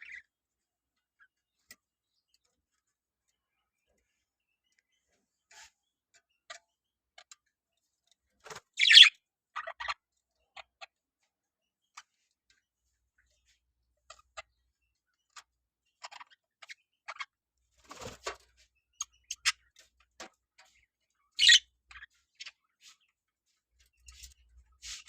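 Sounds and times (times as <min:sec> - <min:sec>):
budgerigars chirping: 0:00.0 - 0:00.2, 0:08.7 - 0:10.9, 0:18.8 - 0:19.8, 0:20.6 - 0:23.0.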